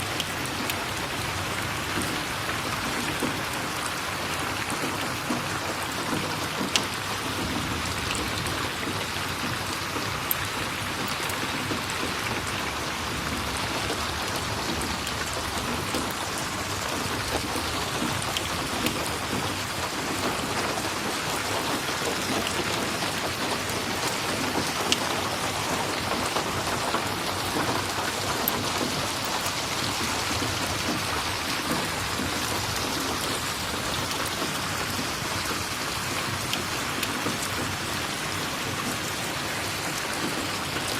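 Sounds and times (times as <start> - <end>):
heavy rainfall: 0.0 - 40.9.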